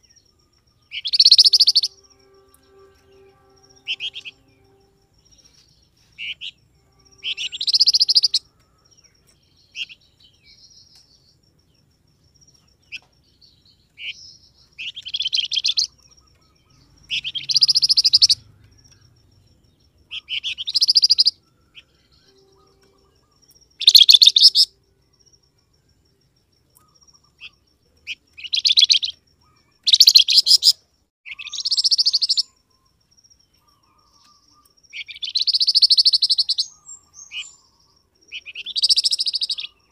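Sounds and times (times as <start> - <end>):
songbird chattering calls: 0.9 - 2.0, 7.2 - 8.4, 13.9 - 18.4, 20.1 - 21.4, 22.2 - 24.7, 26.8 - 32.6, 33.6 - 39.9.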